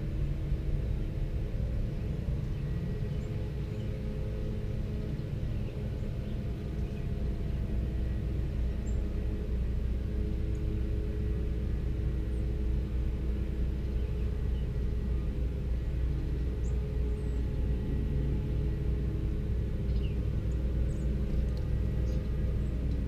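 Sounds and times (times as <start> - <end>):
faint hum: 0.0 - 23.0
low rumble: 0.0 - 23.0
small birds chirping: 19.8 - 23.0.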